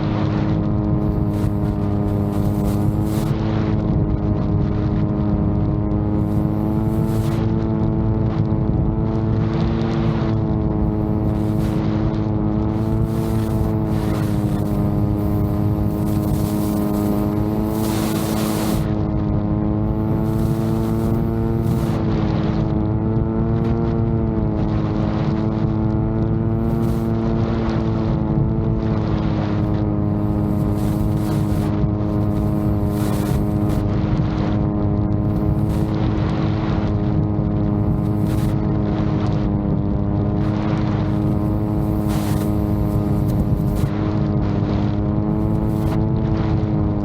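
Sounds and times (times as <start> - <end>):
drone propellers humming: 0.0 - 47.0
wind buffeting microphone: 0.0 - 47.0.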